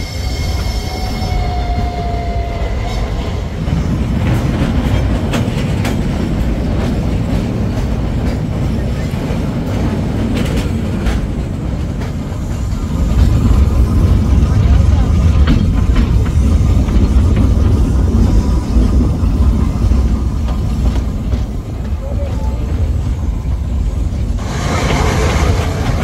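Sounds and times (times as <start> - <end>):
train wheels squealing: 0.0 - 4.0
train rumbling: 0.0 - 26.0
clacks over rail joints: 3.6 - 26.0.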